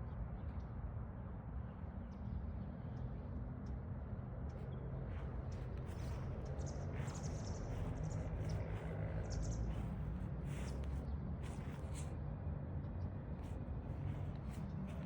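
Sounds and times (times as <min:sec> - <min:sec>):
steady low rumble: 0:04.4 - 0:15.0
small birds chirping: 0:04.5 - 0:12.2, 0:13.4 - 0:15.0.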